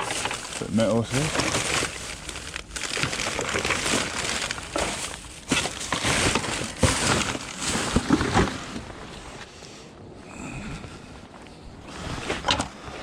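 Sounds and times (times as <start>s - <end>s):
scrap rustling and crumpling: 0.0s - 9.6s.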